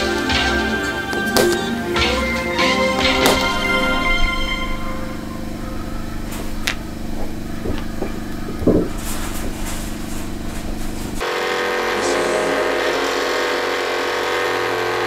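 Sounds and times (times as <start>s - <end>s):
low motor hum: 1.1s - 15.0s
loud knock: 7.6s - 9.7s.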